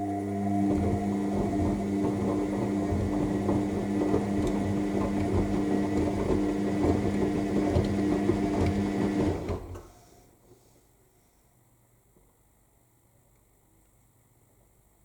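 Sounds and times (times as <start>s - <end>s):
washing machine motor hum: 0.0s - 10.0s.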